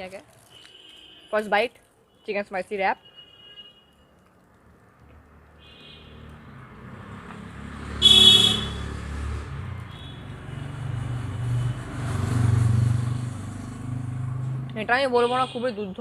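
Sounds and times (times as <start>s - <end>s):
loud horn blast: 8.0s - 8.9s.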